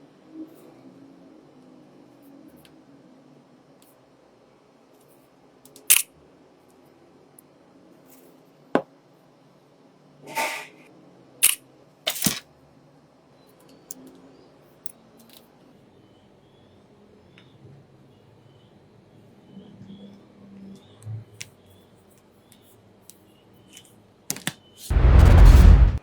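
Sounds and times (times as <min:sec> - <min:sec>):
tools clicking on workbench: 0:05.7 - 0:06.1, 0:11.4 - 0:12.4.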